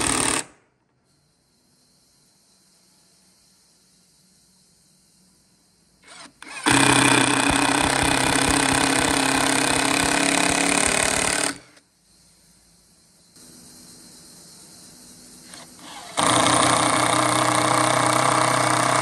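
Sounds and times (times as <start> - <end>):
woodworking power tool rattling: 6.0 - 11.8, 15.5 - 19.0.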